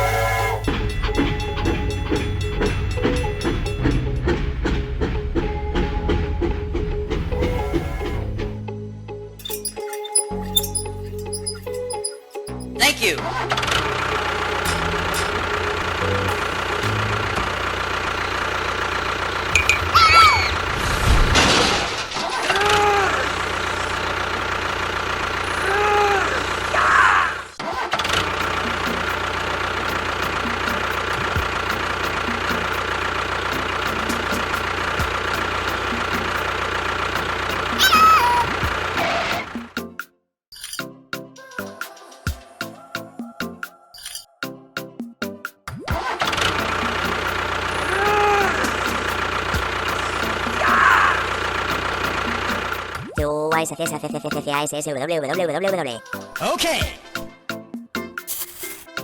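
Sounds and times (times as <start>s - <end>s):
engine idling: 0.0s - 8.6s, 13.2s - 39.8s, 46.2s - 53.0s
short pitched glides: 13.5s - 22.6s.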